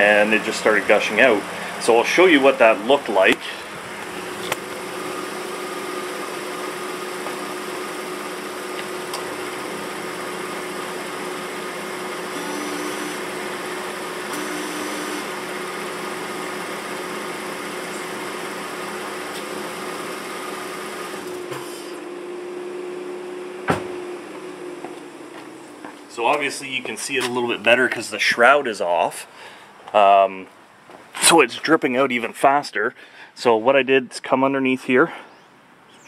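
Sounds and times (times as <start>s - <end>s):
car engine idling: 0.0s - 28.3s
high-pitched whirring bursts: 12.3s - 13.4s.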